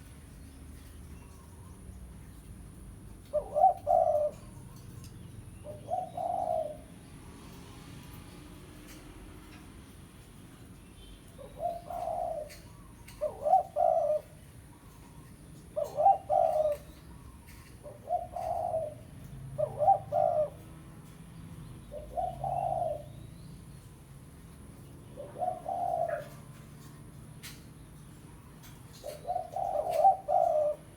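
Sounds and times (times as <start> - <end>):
dove cooing: 3.1 - 7.1, 11.4 - 21.2, 21.8 - 23.2, 24.6 - 27.6, 28.7 - 30.9.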